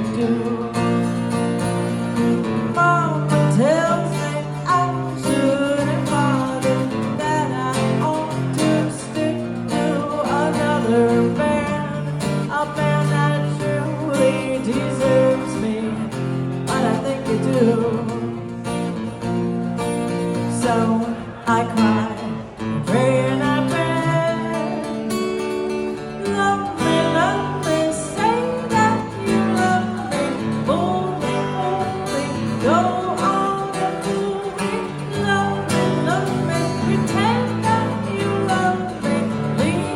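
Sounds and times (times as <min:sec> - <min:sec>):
acoustic guitar chords: 0:00.0 - 0:39.9.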